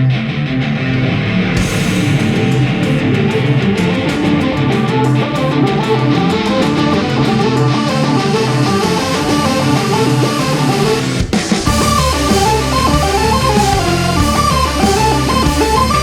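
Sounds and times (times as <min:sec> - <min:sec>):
electric guitar: 0:00.0 - 0:16.0
rock band music: 0:00.0 - 0:16.0
cymbal strokes: 0:01.6 - 0:05.3.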